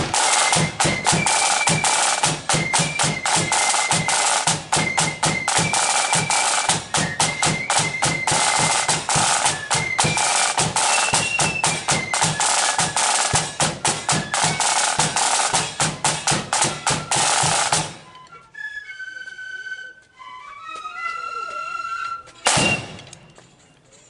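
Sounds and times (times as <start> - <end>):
snare drum rolls: 0.0 - 18.1, 22.5 - 23.2
high held flute notes: 0.3 - 23.0.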